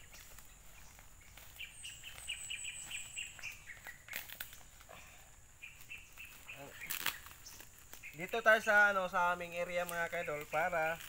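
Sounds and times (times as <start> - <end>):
bird chirping: 0.0 - 11.0
plastic wrapping crinkling: 6.1 - 8.5.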